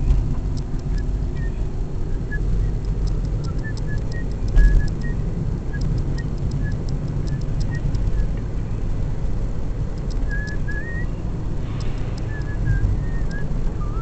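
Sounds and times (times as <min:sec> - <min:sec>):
high ticks: 0:00.0 - 0:01.6, 0:02.3 - 0:09.0, 0:09.7 - 0:14.0
steady low rumble: 0:00.0 - 0:14.0
wavering whistle-like notes: 0:10.2 - 0:11.2, 0:11.8 - 0:14.0.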